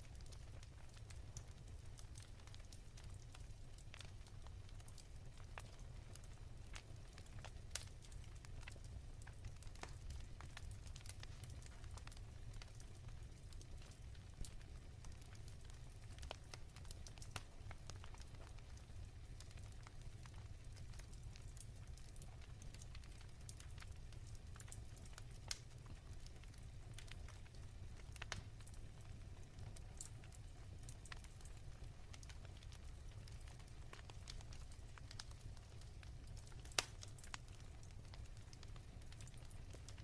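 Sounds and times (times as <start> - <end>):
low rumble of fire: 0.0 - 40.0
wood fire pops and snaps: 0.1 - 40.0.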